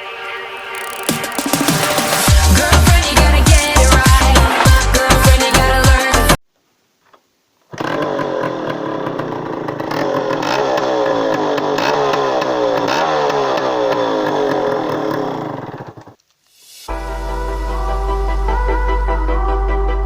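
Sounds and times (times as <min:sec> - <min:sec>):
two-stroke engine revving: 0:00.0 - 0:06.4, 0:09.9 - 0:15.7.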